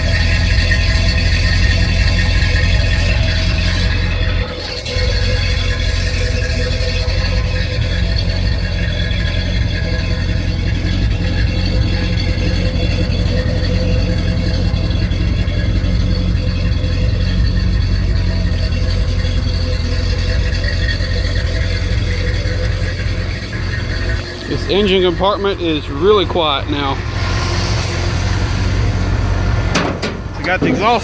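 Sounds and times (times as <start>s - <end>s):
pickup engine idling: 0.0s - 31.0s.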